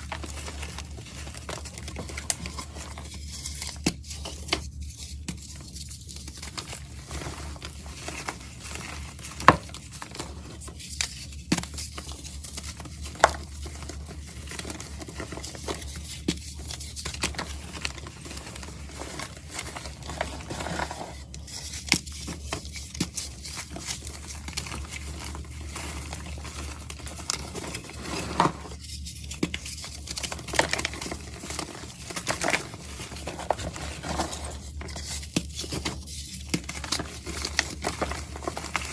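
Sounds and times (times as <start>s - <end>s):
powdery block crunching: 30.2s - 34.8s.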